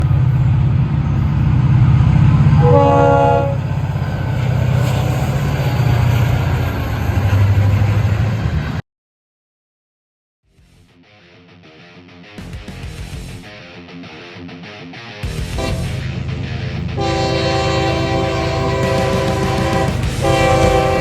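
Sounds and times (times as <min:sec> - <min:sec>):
diesel locomotive rumbling: 0:00.0 - 0:08.8, 0:15.6 - 0:21.0
locomotive horn blast: 0:02.6 - 0:03.8, 0:15.6 - 0:16.0, 0:17.0 - 0:21.0.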